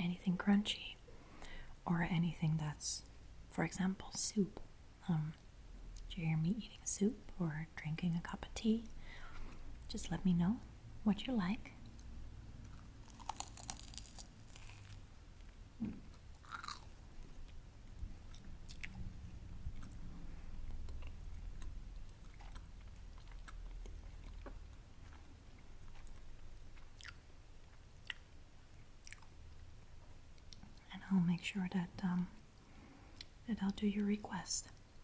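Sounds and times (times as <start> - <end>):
soft chewing: 11.6 - 30.9, 32.0 - 35.0
crunchy bite: 12.8 - 15.0, 15.9 - 16.9.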